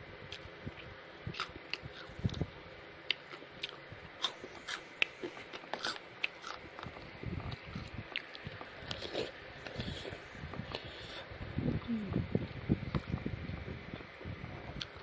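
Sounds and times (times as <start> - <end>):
crunchy chewing: 1.3 - 11.3.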